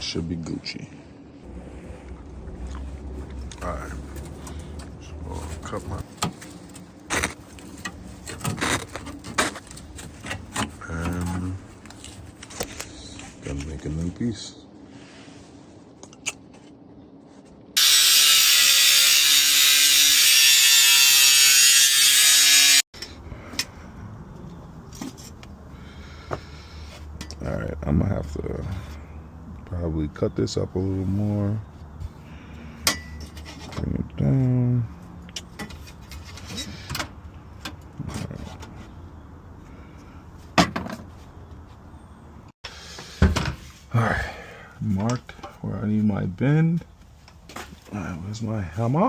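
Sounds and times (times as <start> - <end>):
power tool cutting sheet steel: 17.8 - 22.8.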